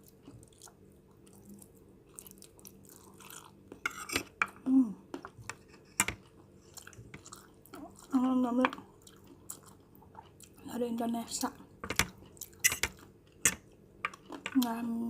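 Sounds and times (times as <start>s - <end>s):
chewing and mouth sounds: 0.0s - 3.8s, 6.2s - 10.6s.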